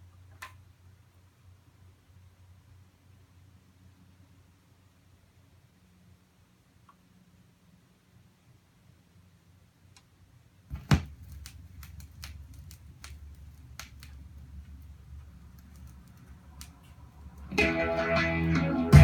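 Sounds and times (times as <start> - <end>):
stylus thump on record: 10.7 - 11.2
record clicks and pops: 10.7 - 17.8
guitar music through speakers: 17.5 - 19.0.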